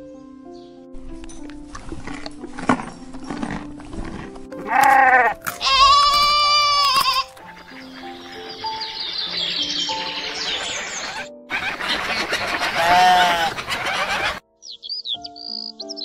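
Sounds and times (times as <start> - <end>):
background music: 0.0 - 16.0
goat bleating: 4.6 - 7.5, 12.8 - 14.4.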